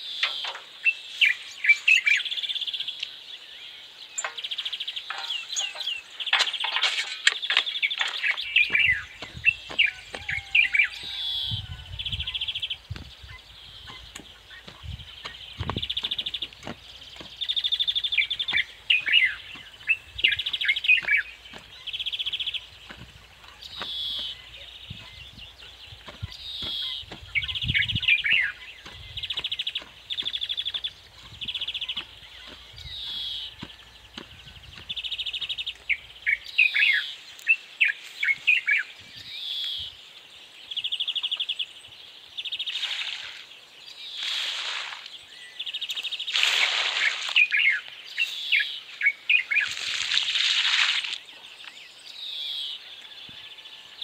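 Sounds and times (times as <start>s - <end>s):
hoe knocking dry soil: 4.2s - 36.3s.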